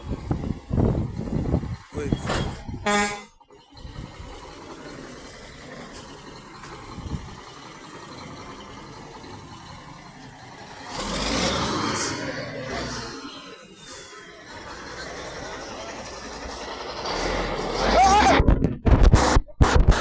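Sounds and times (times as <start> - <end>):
truck engine running: 0.0 - 20.0
rush of noise: 13.9 - 20.0.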